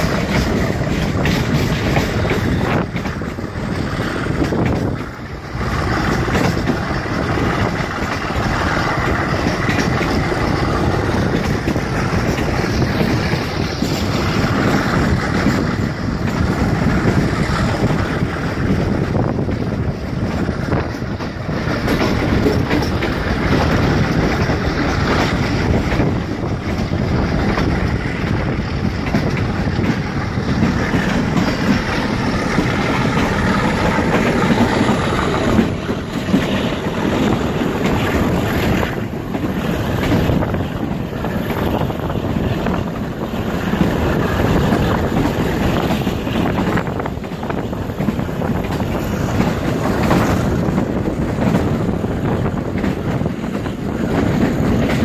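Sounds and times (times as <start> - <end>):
train wheels rumbling on rails: 0.0 - 55.0
wind blowing on microphone: 0.0 - 55.0.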